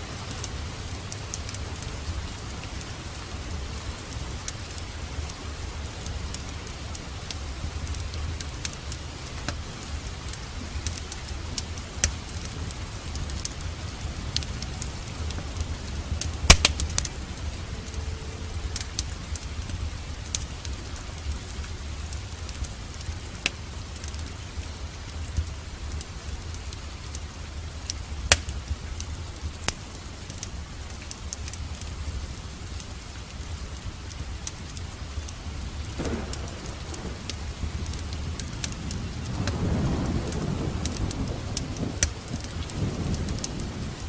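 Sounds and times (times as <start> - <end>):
fireplace crackling: 0.0 - 44.0
steady rain: 0.0 - 44.0
thunder rolling: 35.9 - 44.0.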